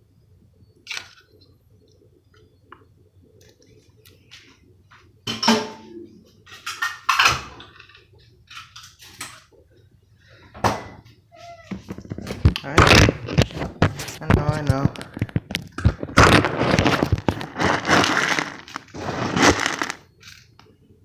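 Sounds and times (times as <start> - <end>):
dishes and bowls clinking: 5.3 - 7.8.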